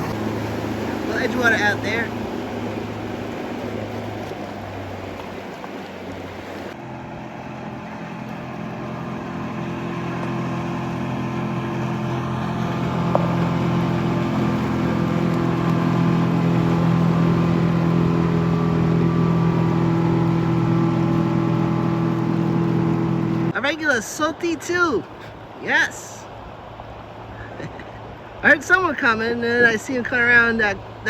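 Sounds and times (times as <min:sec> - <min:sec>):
motorboat engine droning: 0:00.0 - 0:31.0.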